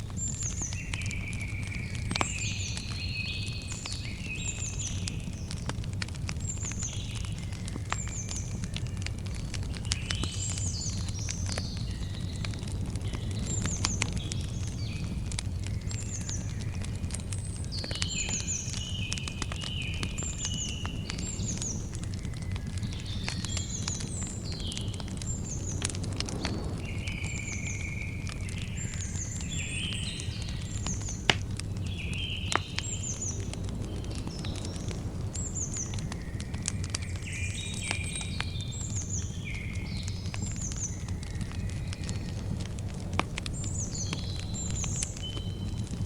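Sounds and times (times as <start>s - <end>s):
campfire crackling: 0.0s - 46.0s
fire popping: 0.0s - 46.0s
birds chirping: 6.3s - 46.0s.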